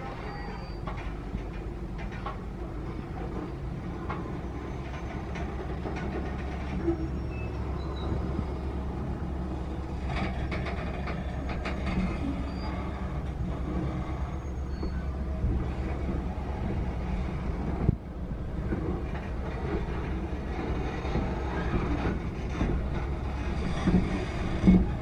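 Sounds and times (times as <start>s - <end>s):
freight train rumbling: 0.0s - 25.0s
train wheels clacking: 0.0s - 25.0s.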